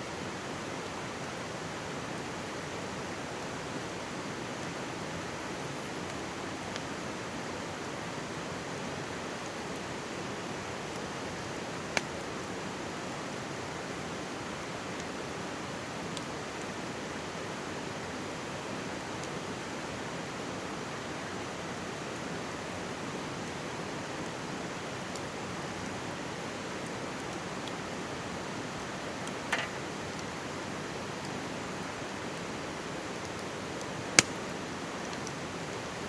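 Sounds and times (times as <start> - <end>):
campfire crackling and popping: 10.8 - 13.4, 24.7 - 36.0.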